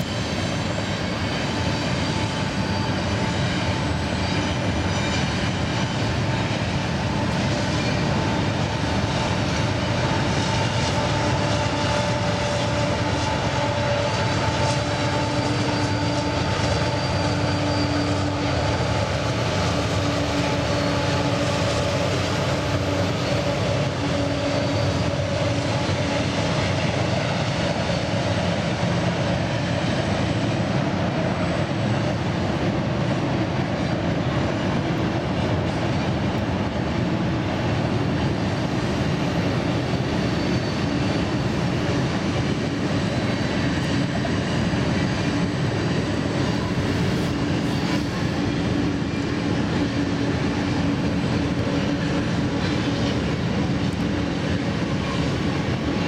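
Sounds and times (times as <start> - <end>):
diesel locomotive hum: 0.0 - 56.0
freight cars rumbling on rails: 0.0 - 56.0.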